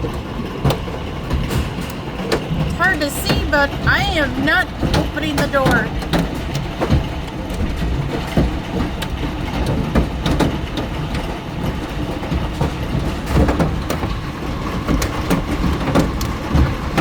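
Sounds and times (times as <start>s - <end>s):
hailstones clattering on roof: 0.0s - 17.0s.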